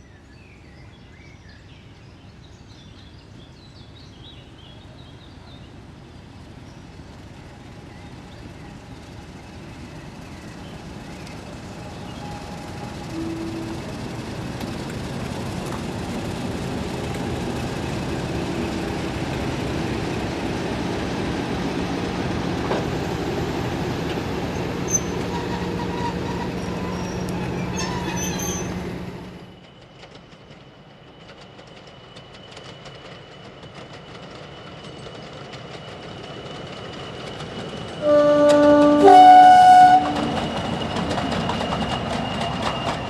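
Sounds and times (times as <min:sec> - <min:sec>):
diesel locomotive engine drone: 0:03.2 - 0:43.0
wheels squealing: 0:09.6 - 0:29.6, 0:34.6 - 0:43.0.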